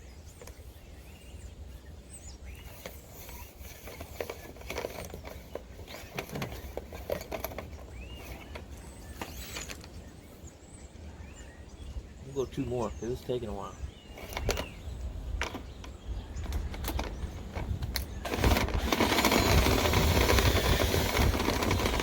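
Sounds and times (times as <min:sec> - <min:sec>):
birds chirping: 0:00.0 - 0:22.0
low wind rumble: 0:06.4 - 0:22.0.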